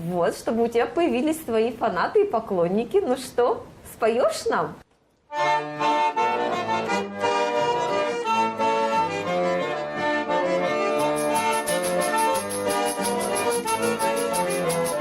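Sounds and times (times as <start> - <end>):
button accordion playing tune: 5.3 - 15.0
quick high tapping rhythm: 11.0 - 15.0.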